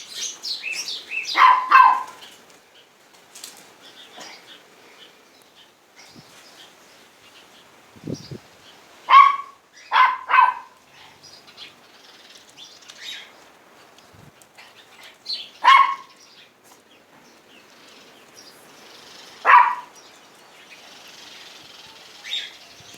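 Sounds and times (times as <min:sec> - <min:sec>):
sparrows chirping: 0:00.0 - 0:22.9
dog barking: 0:01.3 - 0:02.2, 0:09.1 - 0:10.8, 0:15.6 - 0:16.2, 0:19.4 - 0:19.9.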